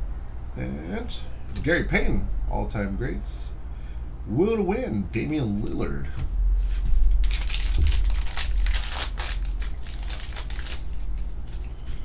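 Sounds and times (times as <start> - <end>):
foil wrapper crinkling: 7.1 - 11.7.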